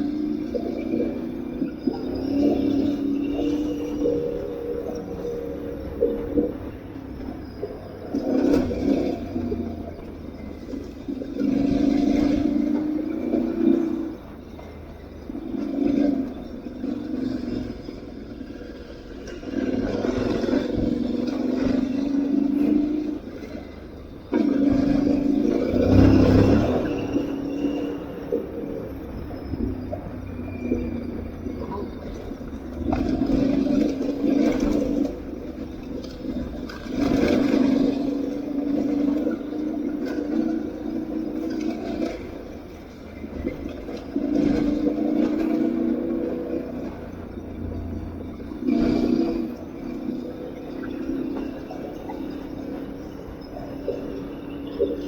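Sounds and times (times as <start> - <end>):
motorbike engine under throttle: 24.6 - 27.5.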